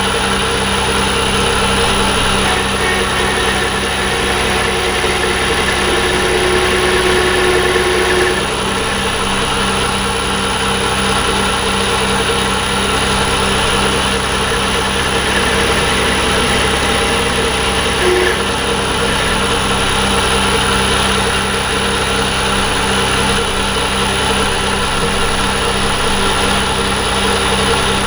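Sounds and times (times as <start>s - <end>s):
metal lathe whining hum: 0.0s - 28.0s
extra tone: 2.2s - 10.2s, 13.9s - 21.9s.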